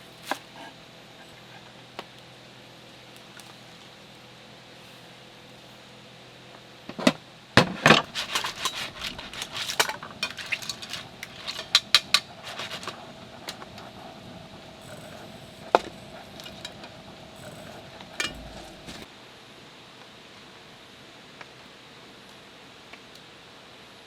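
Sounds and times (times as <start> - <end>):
small hard objects clinking: 8.0 - 13.8.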